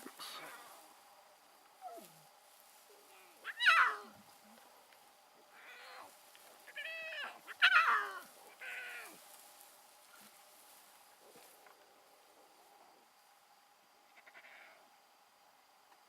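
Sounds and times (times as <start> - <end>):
lion cub mewing: 3.1 - 4.2, 5.5 - 9.2, 14.1 - 14.8.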